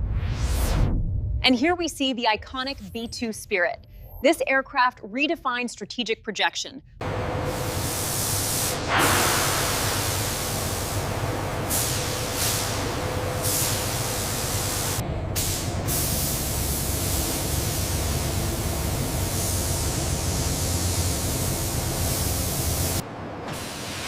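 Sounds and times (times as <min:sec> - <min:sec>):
low rumble: 0:00.0 - 0:03.2
loud rushing hiss: 0:07.5 - 0:24.0.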